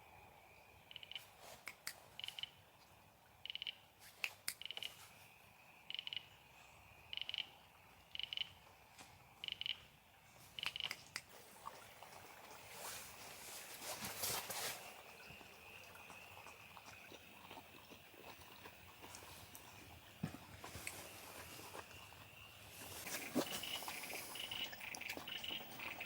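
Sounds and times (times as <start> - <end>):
frog calling: 0.9 - 1.3, 2.2 - 2.6, 3.4 - 3.8, 5.8 - 6.4, 7.0 - 8.6, 9.4 - 9.8, 22.3 - 26.0
sharp clicks: 10.6 - 11.3.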